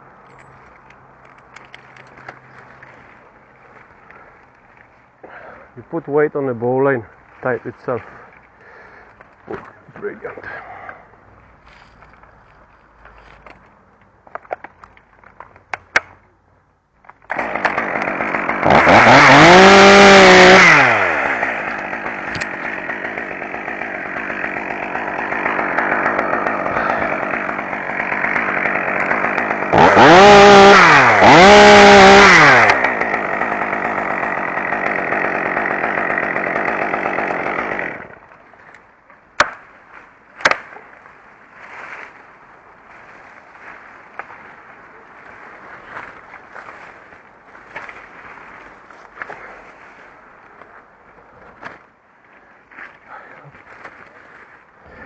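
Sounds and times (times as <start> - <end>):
chainsaw engine revving: 17.3 - 38.2.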